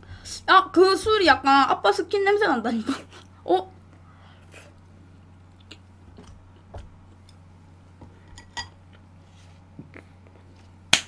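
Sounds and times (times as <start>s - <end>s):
faint chewing: 4.4s - 7.4s.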